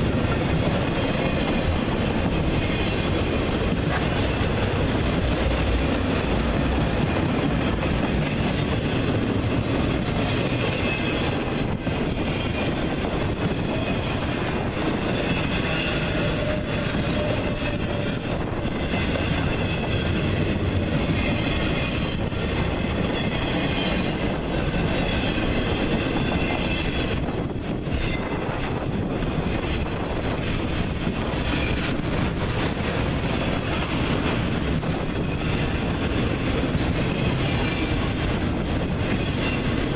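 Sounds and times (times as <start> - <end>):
train wheels clacking over rail joints: 0.0 - 39.9
high wheel squeal: 10.2 - 12.9, 13.5 - 28.6.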